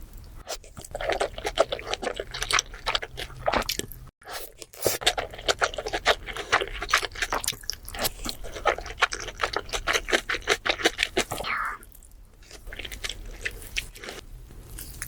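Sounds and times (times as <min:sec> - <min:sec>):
crunching and chewing seafood: 0:00.5 - 0:15.0.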